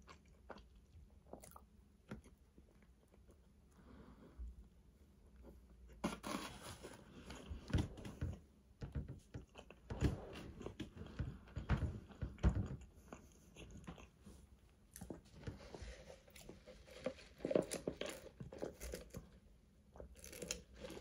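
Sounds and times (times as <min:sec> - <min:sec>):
person chewing fried food: 0:00.0 - 0:03.5, 0:12.9 - 0:15.5, 0:20.0 - 0:21.0.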